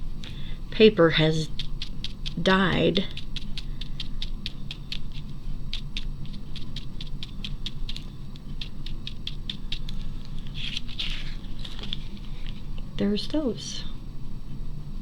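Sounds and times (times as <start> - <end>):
brush tapping on paper: 1.4 - 12.6.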